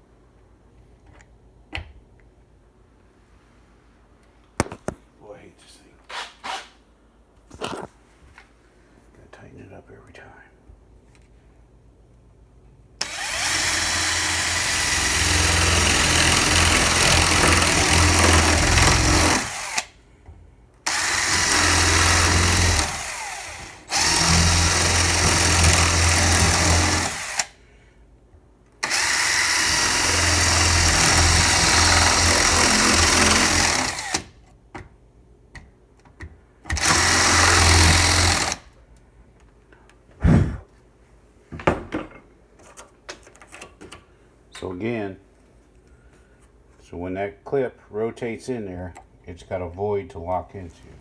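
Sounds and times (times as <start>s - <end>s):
power tool cutting plywood: 13.0s - 19.9s, 20.9s - 27.6s, 28.8s - 34.3s, 36.7s - 38.6s.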